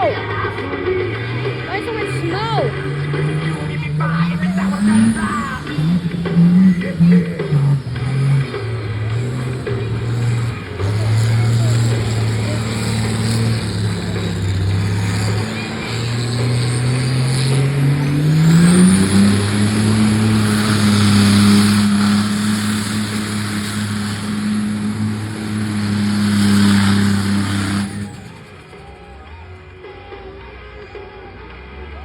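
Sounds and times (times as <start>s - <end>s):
high whine: 0.0s - 29.2s
monster truck engine revving: 0.0s - 30.2s.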